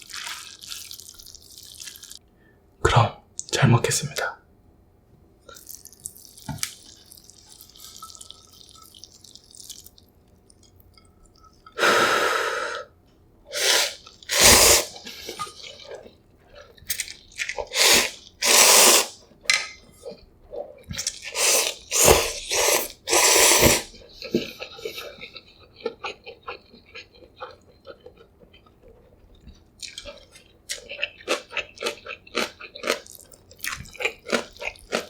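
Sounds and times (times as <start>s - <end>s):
slurping noodles: 13.5s - 19.2s, 20.8s - 25.3s.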